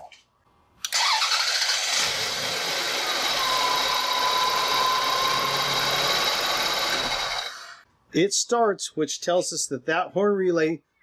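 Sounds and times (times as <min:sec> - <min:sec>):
thin steady whistle: 0:03.3 - 0:07.5.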